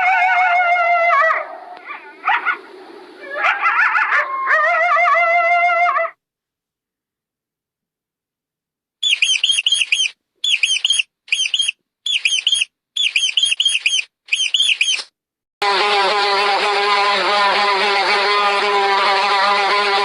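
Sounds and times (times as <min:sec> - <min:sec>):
bird chirping: 0:09.0 - 0:15.1.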